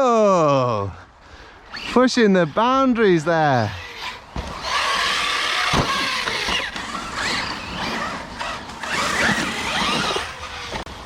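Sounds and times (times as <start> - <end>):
tyre and terrain noise: 0.0 - 11.0
electric motors whining: 3.6 - 11.0.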